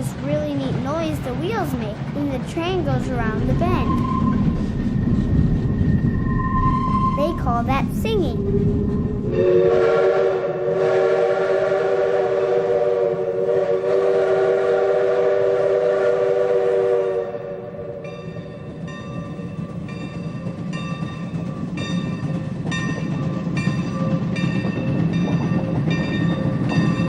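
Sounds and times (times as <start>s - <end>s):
rumble of train cars: 0.0s - 27.0s
train wheels squealing: 3.6s - 7.6s.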